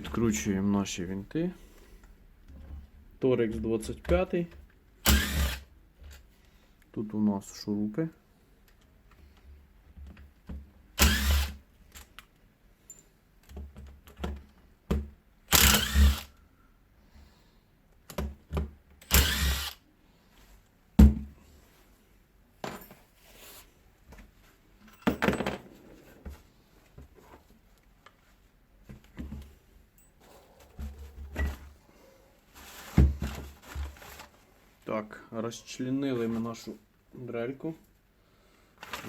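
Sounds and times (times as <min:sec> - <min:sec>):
cordless screwdriver spinning: 0:05.1 - 0:05.6, 0:11.0 - 0:11.5, 0:15.5 - 0:16.3, 0:19.1 - 0:19.8
clicks and knocks of handled parts: 0:11.8 - 0:15.1, 0:24.1 - 0:27.1.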